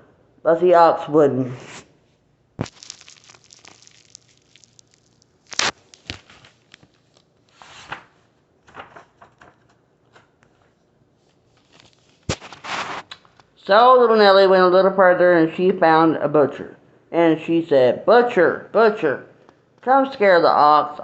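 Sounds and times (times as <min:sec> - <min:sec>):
paper pages rustling: 0:02.6 - 0:08.1, 0:11.3 - 0:13.3.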